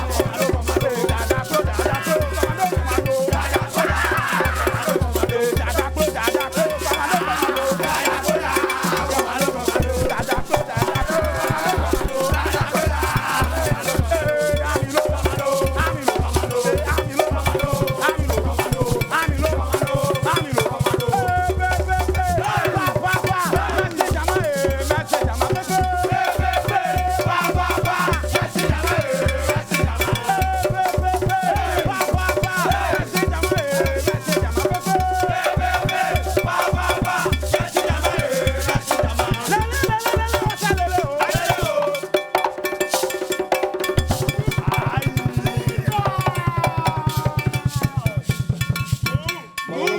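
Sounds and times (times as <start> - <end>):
shaker percussion: 0.0 - 49.9
bass beat: 9.2 - 14.4, 44.0 - 48.0
up-tempo band music: 43.8 - 46.6.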